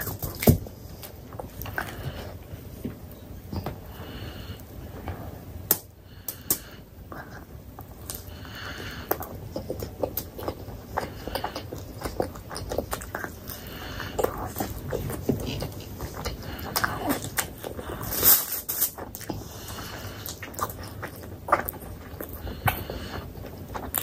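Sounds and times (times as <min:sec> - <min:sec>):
chewing and wet mouth smacks: 0:09.1 - 0:24.0.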